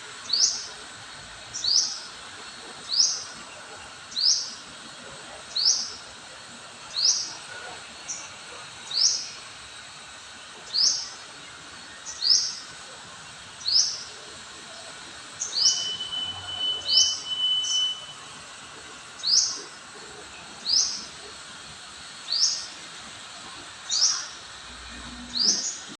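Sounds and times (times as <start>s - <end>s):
thin steady tone: 13.8s - 21.4s
oriole high call: 15.6s - 18.3s.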